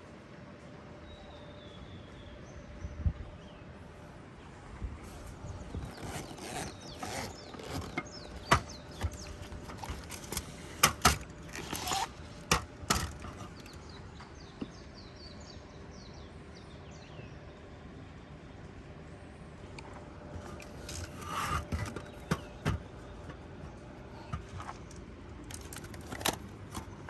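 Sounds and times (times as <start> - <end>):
camping gear clicks and knocks: 5.0 - 13.9, 20.3 - 27.0.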